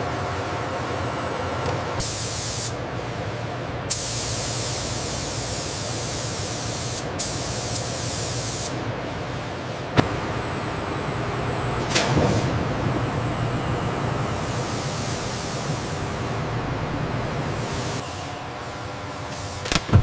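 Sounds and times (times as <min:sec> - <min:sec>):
sharp knock: 0:10.0 - 0:10.4
low machine hum: 0:10.0 - 0:18.0.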